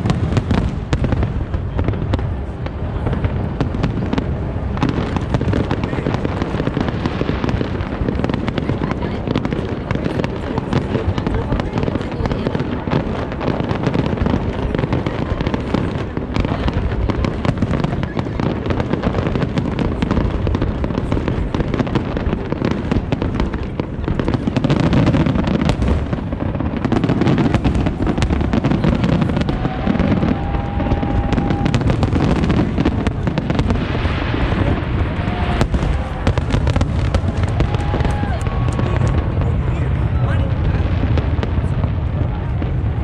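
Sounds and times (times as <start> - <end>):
fireworks bursts and crackling: 0.0 - 43.0.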